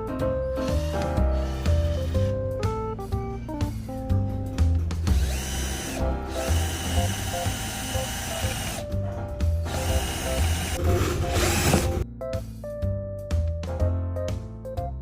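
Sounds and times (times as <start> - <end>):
background music with steady beat: 0.0 - 15.0
cordless drill whining: 0.7 - 2.3, 5.1 - 8.8, 9.6 - 12.0.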